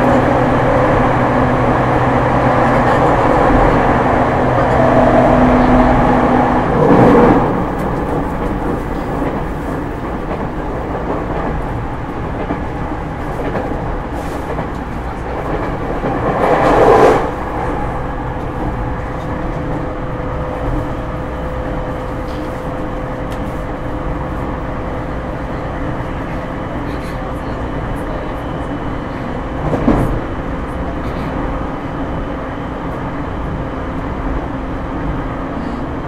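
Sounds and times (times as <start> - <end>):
train wheels rumbling on rail: 0.0 - 36.0.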